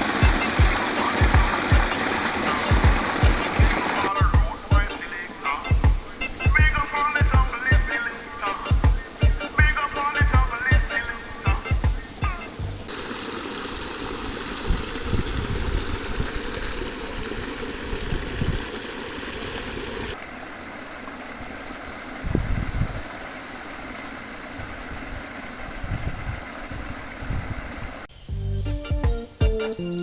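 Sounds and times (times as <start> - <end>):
mountain stream rushing: 0.0 - 22.3
wind buffeting microphone: 14.6 - 18.7.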